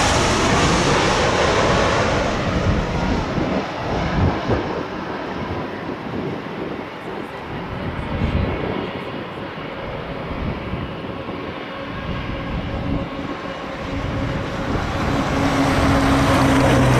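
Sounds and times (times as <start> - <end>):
jet engine roar: 0.0 - 16.9.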